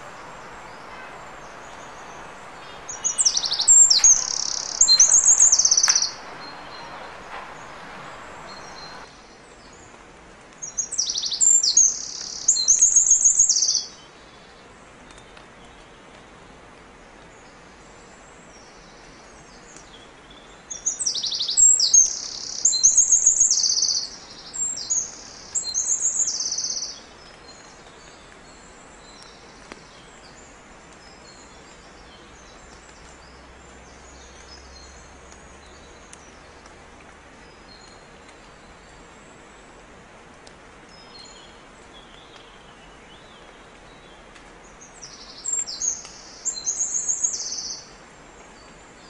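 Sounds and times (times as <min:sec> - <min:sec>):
birds chirping and trilling: 0:00.0 - 0:09.1
low hiss: 0:00.0 - 0:09.7.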